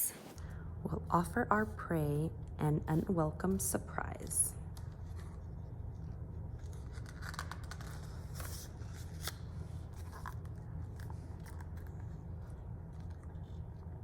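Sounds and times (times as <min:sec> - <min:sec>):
steady low hum: 0:00.0 - 0:14.0
paper pages rustling: 0:04.8 - 0:13.9.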